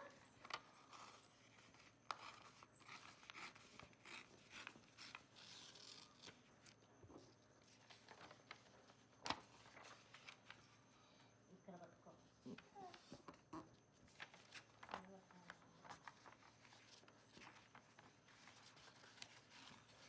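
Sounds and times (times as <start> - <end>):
paper rustling and rubbing: 7.6 - 10.6, 14.1 - 20.0.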